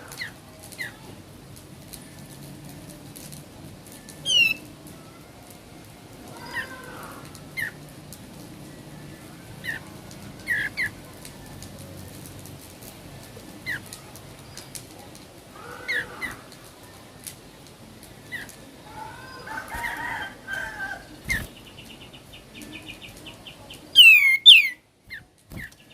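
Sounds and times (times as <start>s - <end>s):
songbird chirping: 4.1s - 4.8s, 18.2s - 25.9s.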